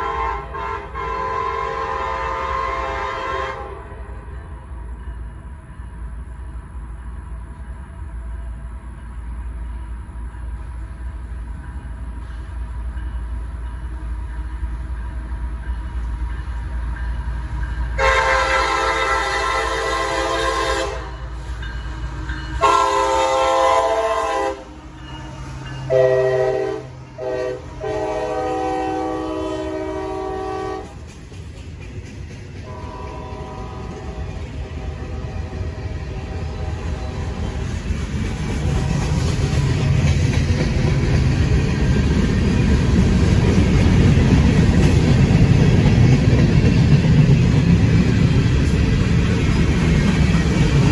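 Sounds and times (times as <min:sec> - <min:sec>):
train horn blasts: 0:00.0 - 0:04.4, 0:18.0 - 0:21.5, 0:22.6 - 0:24.8, 0:25.9 - 0:31.0, 0:32.6 - 0:37.4
diesel locomotive rumbling: 0:00.0 - 0:50.9.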